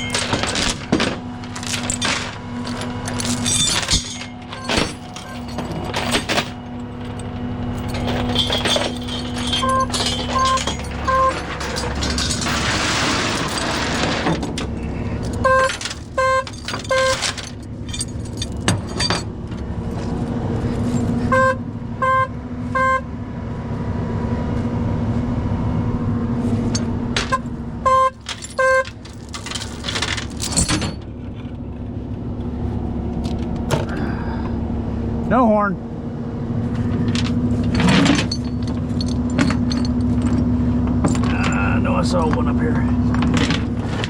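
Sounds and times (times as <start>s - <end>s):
car horn beeps: 9.6s - 11.4s, 15.4s - 17.2s, 21.2s - 23.1s, 27.3s - 29.0s.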